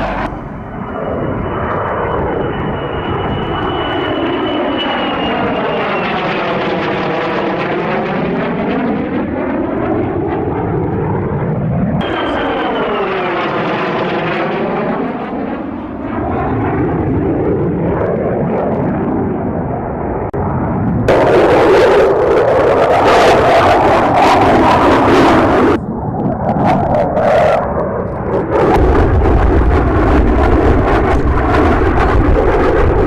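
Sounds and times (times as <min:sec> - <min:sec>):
sudden rush of noise: 0:00.0 - 0:00.7
jet aircraft flying past: 0:00.0 - 0:33.0.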